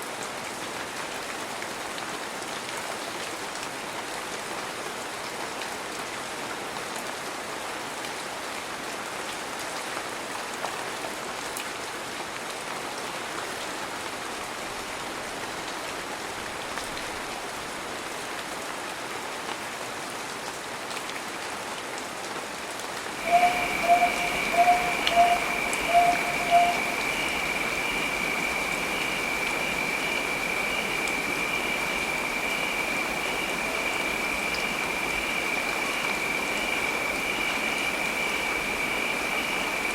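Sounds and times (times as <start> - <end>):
heavy rain falling: 0.0 - 39.9
steady high-pitched tone: 23.2 - 39.9.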